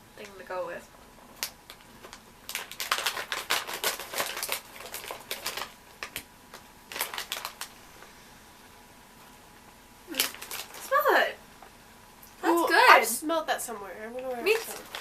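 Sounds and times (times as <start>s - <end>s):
plastic packaging crinkling: 1.3s - 8.1s, 10.1s - 11.1s, 14.2s - 15.0s.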